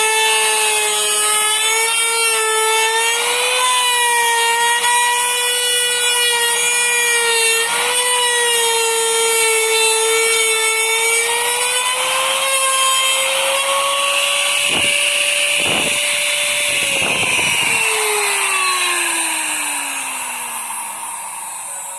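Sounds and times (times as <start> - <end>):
router cutting wood: 0.0 - 21.9
motor spinning down: 8.8 - 21.9.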